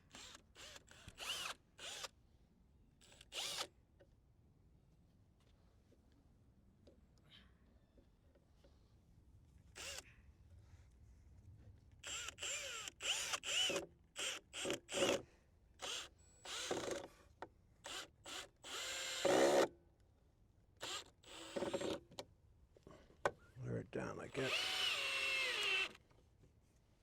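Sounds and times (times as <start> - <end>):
power drill driving screws into wood: 0.1 - 2.1, 3.0 - 3.7, 9.8 - 10.0, 12.0 - 15.2, 15.8 - 17.1, 17.8 - 19.7, 20.8 - 22.0, 24.5 - 26.0.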